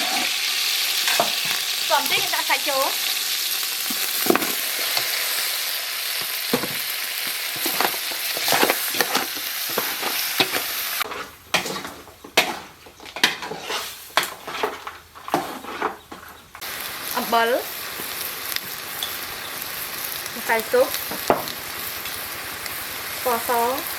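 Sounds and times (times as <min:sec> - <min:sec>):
utensil scraping a pan: 0:00.0 - 0:02.5, 0:03.8 - 0:05.6, 0:06.2 - 0:16.6
food sizzling in a pan: 0:00.0 - 0:12.6, 0:16.6 - 0:23.9.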